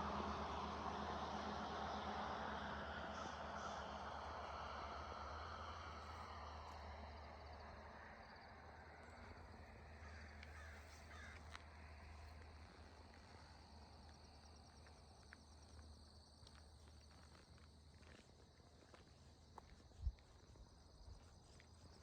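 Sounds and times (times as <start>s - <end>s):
faint bird calls: 9.1s - 11.6s.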